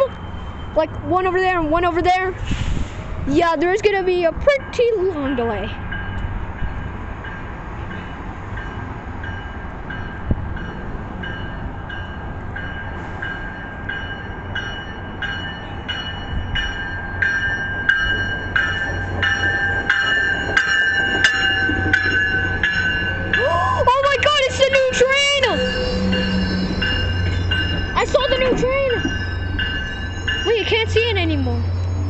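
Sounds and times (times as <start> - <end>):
train wheel clatter with ringing: 7.3 - 32.0.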